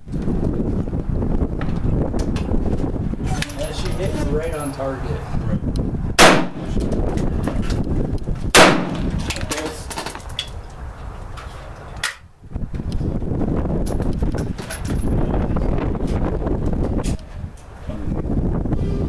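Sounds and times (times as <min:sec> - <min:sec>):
pistol shot: 0:06.2 - 0:06.8, 0:08.5 - 0:09.1.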